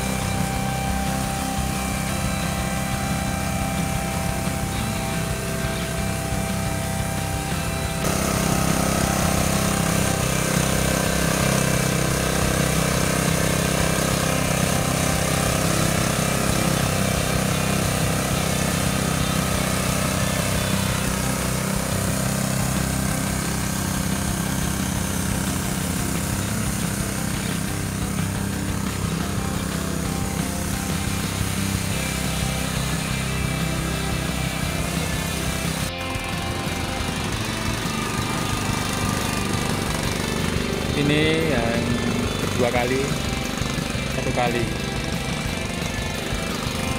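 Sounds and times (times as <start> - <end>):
petrol engine running: 0.0 - 46.9.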